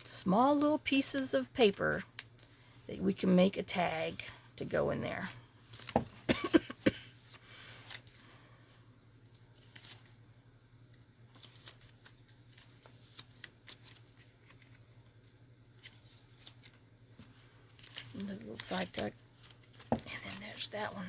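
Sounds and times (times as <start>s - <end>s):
paper pages rustling: 5.2s - 6.3s, 7.1s - 8.3s, 9.2s - 20.8s.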